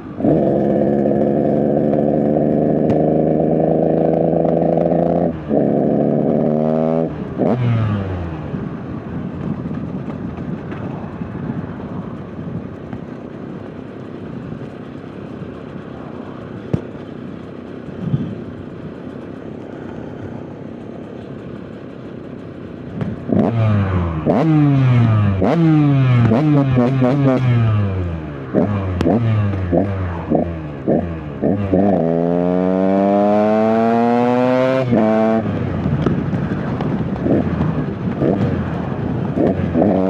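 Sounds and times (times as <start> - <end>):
dirt bike engine revving: 0.0 - 8.5, 23.0 - 40.0
engine knocks: 35.6 - 40.0
rider talking: 36.2 - 38.4.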